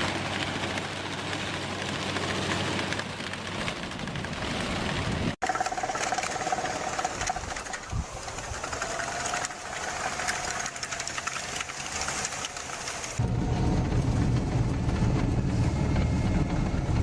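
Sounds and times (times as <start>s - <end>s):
machine fine ticking clatter: 0.0s - 13.2s.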